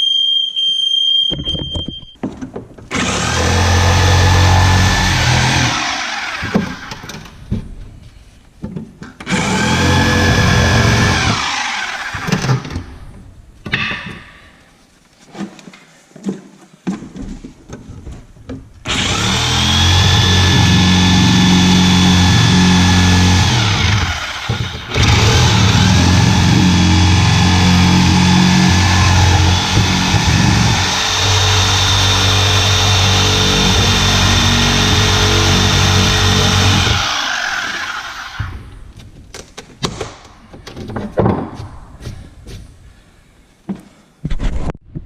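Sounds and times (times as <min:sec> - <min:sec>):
power tool cutting wood: 0:02.9 - 0:07.2, 0:09.3 - 0:12.6, 0:18.9 - 0:38.6.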